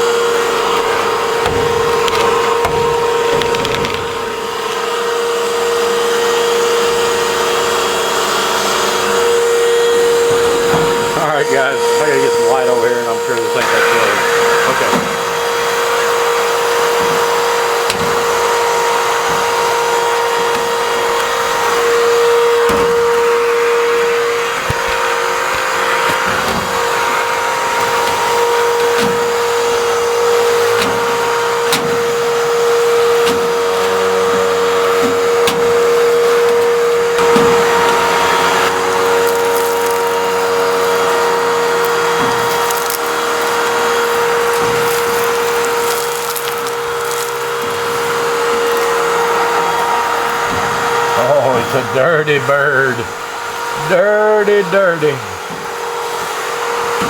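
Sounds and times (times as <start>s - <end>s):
nozzle knocking in duct: 0.0s - 6.0s, 13.5s - 52.0s
vacuum cleaner running: 0.0s - 57.0s.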